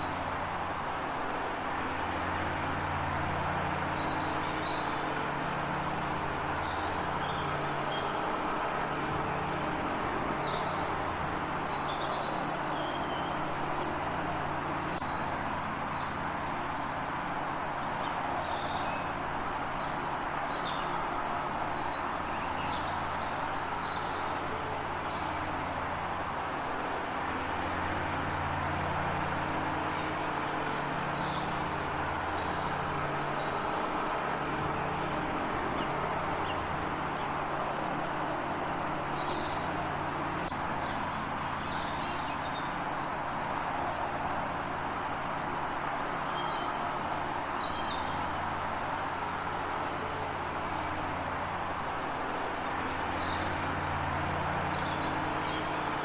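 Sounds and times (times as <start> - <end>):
road traffic rumble: 0.0 - 56.0.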